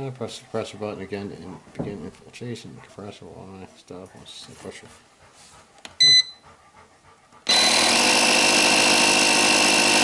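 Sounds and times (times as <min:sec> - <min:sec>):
air compressor running: 0:07.5 - 0:10.0.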